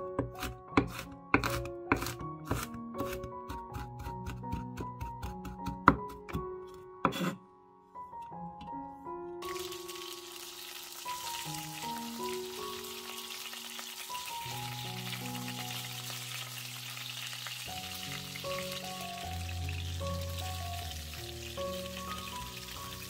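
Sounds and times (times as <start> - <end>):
background music with sustained notes: 0.0 - 23.0
chicken sizzling in a pan: 9.4 - 23.0.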